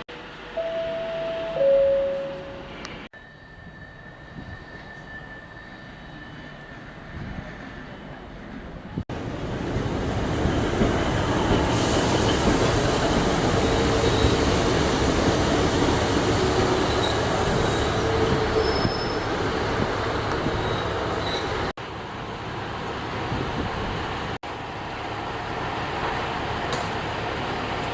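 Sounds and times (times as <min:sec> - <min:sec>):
train rumbling along track: 0:00.1 - 0:27.9
high-pitched wheel squeals: 0:03.2 - 0:07.8, 0:16.8 - 0:19.4, 0:20.6 - 0:21.6.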